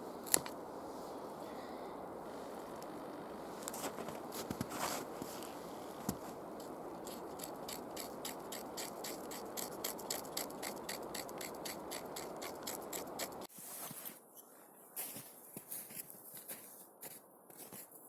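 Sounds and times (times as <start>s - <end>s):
steady rasp: 6.6s - 13.5s
rhythmic scraping: 7.0s - 13.5s.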